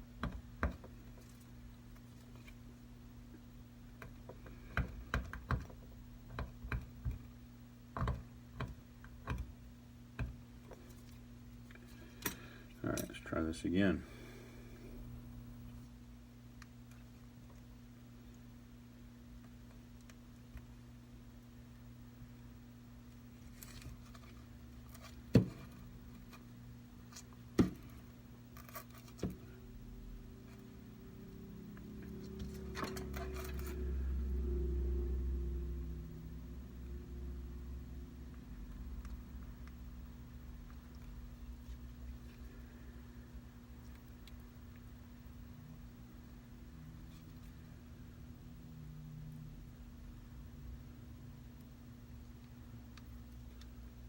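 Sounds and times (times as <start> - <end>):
low electrical hum: 0.0 - 54.0.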